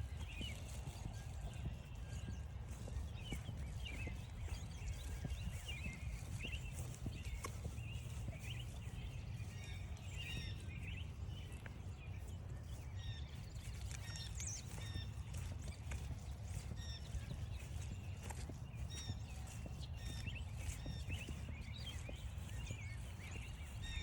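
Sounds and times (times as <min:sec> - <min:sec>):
footsteps on a trail: 0:00.0 - 0:24.0
small birds chirping: 0:00.0 - 0:24.0.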